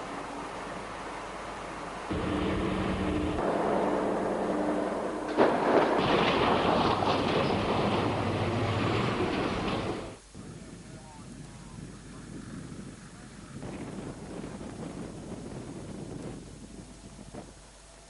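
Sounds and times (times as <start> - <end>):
haul truck diesel engine: 0.0 - 10.3
sharp bang: 2.1 - 10.2
vehicle being crushed grinding: 2.1 - 10.2.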